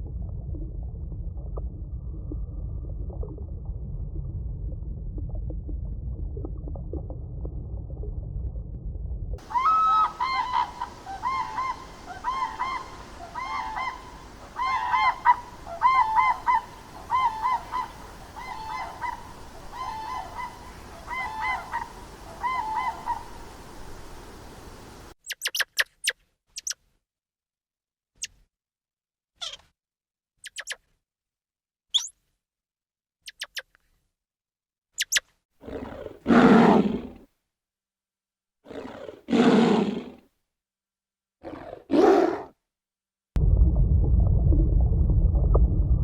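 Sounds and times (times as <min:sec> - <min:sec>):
honking bird calls: 0:09.4 - 0:24.6.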